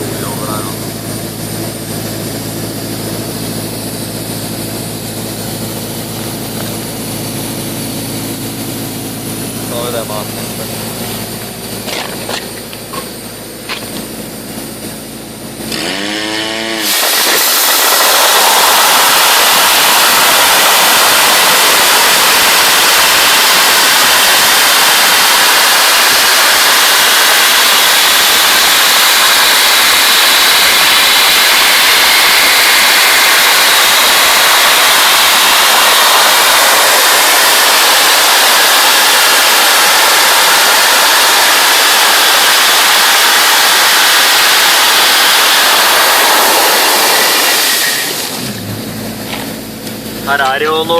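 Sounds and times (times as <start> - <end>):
machine hum: 0.0 - 50.9
compressed air hissing: 15.6 - 48.6.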